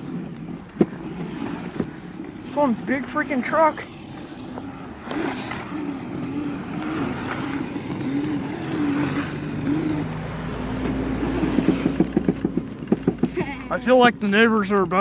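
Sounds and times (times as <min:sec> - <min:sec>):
electric motor whining: 0:00.0 - 0:10.4.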